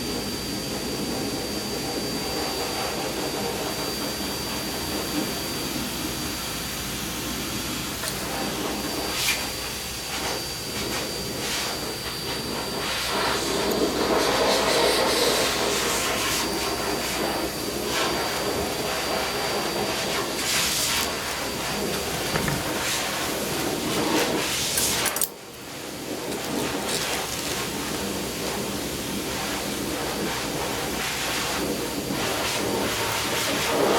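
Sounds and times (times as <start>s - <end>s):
hissing machine noise: 0.0s - 33.9s
clicks and rustles: 21.8s - 23.1s.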